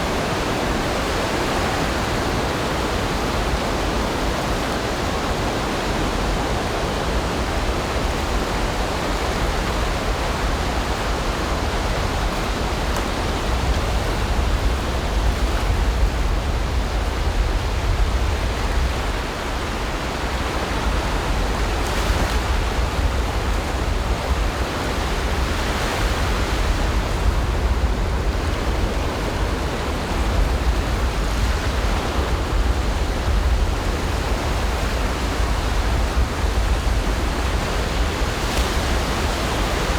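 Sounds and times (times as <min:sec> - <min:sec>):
ocean surf on a beach: 0:00.0 - 0:39.9.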